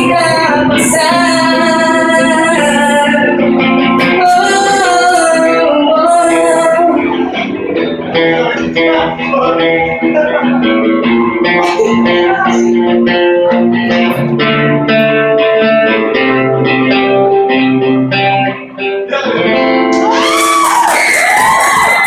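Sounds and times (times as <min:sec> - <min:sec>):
guitar playing chords: 0:00.0 - 0:22.0.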